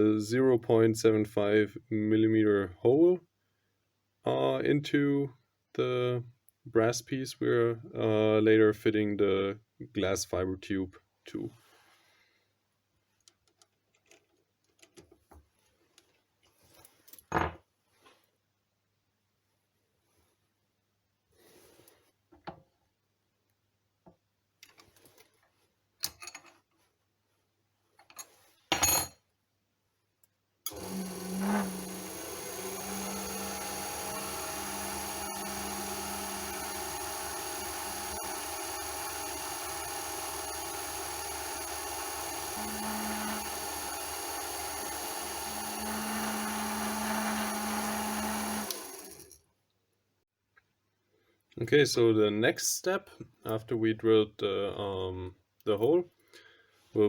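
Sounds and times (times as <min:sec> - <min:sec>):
lathe motor humming and whining: 0:30.7 - 0:49.3
drill bit boring into metal: 0:30.7 - 0:49.4.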